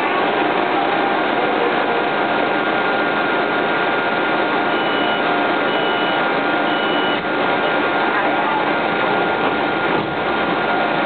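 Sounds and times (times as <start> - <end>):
train running: 0.0 - 11.0
short high beeps: 4.7 - 7.8.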